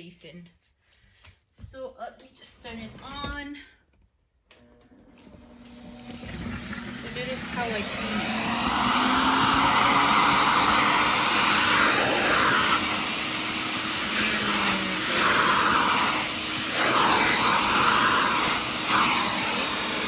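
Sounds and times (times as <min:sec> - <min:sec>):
vacuum cleaner running: 0:04.9 - 0:20.0.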